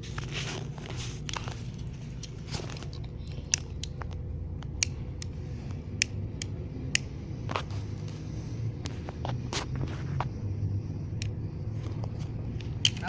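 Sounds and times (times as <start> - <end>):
low steady rumble: 0.0 - 13.0
lighter clicking: 4.6 - 7.2.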